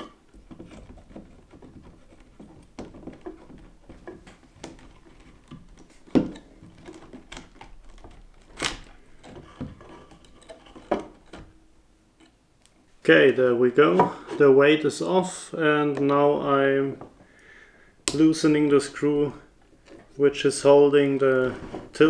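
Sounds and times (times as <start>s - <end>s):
screwdriver and parts clattering: 0.0s - 11.6s.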